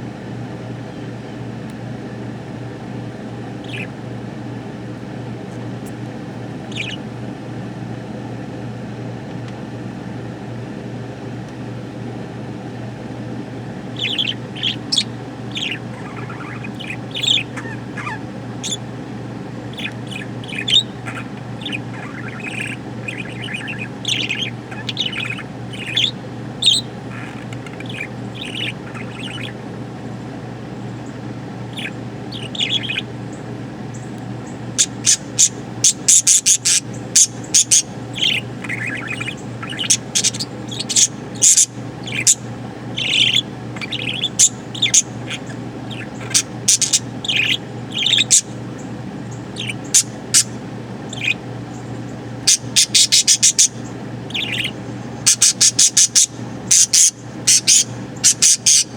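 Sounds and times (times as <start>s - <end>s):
steady low hum: 0.0s - 58.9s
budgerigar chirping: 3.6s - 4.0s, 6.6s - 7.1s, 13.9s - 29.7s, 30.9s - 58.9s.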